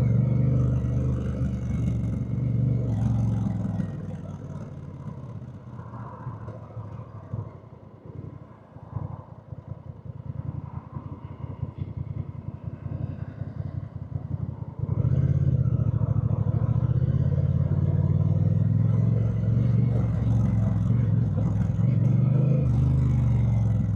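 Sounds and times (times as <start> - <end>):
motorcycle engine revving: 0.0 - 7.5, 13.8 - 23.9.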